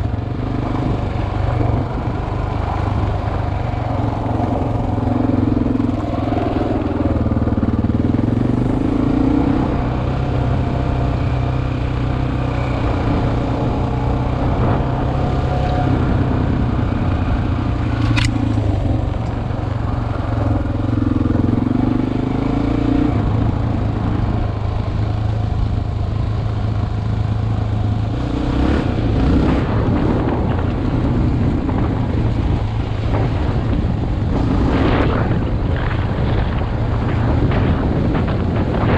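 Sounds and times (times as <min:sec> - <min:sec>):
motorcycle engine running: 0:00.0 - 0:38.9
sharp click: 0:18.0 - 0:19.4.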